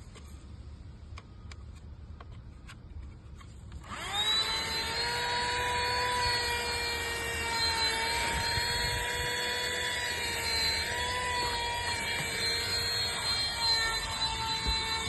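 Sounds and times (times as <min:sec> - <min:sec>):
cordless vacuum motor whine: 0:03.8 - 0:15.0.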